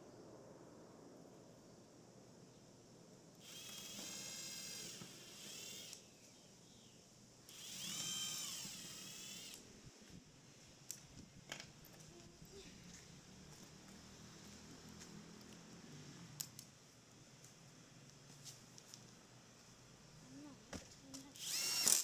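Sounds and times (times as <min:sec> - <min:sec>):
power drill whining: 0:03.4 - 0:06.0, 0:07.5 - 0:09.8, 0:21.3 - 0:22.0.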